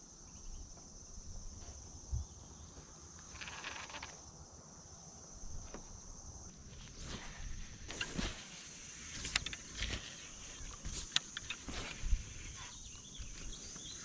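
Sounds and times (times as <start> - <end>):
insect trilling: 2.0 - 5.1, 6.4 - 14.0.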